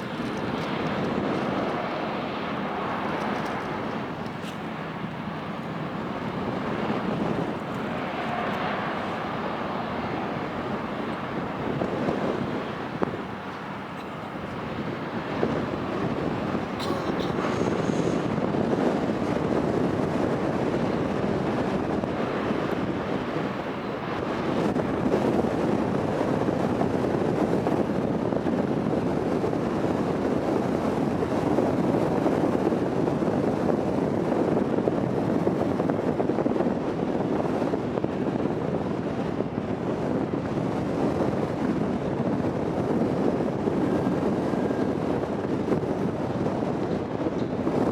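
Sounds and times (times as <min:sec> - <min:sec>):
ship engines and propeller wash: 0:00.0 - 0:47.9
wind noise on microphone: 0:00.0 - 0:47.9.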